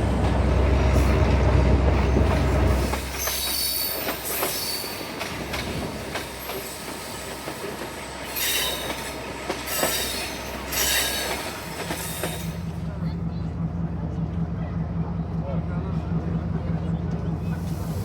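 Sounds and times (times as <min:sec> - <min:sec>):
train rumbling on rails: 0:00.0 - 0:18.0
high-pitched wheel squeals: 0:08.3 - 0:12.6.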